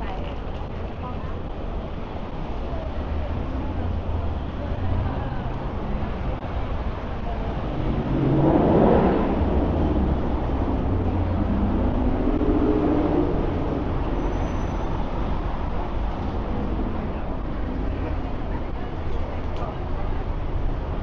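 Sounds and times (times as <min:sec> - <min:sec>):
traffic engine rumble: 0:00.0 - 0:21.0
vehicle passing close: 0:07.3 - 0:14.2.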